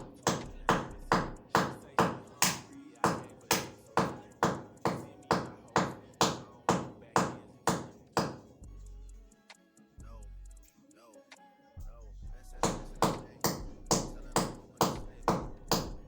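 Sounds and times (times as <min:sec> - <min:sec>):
music with deep bass: 0:00.0 - 0:01.9, 0:08.5 - 0:10.8, 0:11.8 - 0:16.0.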